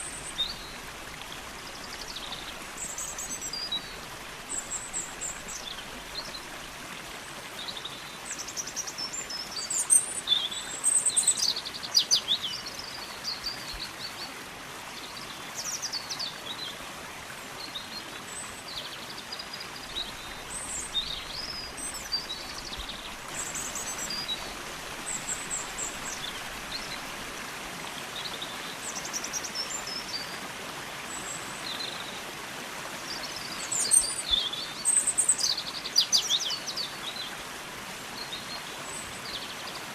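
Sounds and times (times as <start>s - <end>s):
songbird singing: 0.0s - 6.6s, 7.6s - 14.3s, 17.6s - 27.2s, 33.1s - 37.4s
flowing water rushing: 0.0s - 39.9s.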